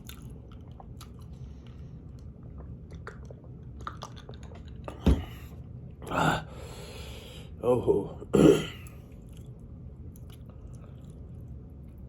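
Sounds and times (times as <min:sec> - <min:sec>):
chewing noodles: 0:00.0 - 0:05.0, 0:08.8 - 0:12.0.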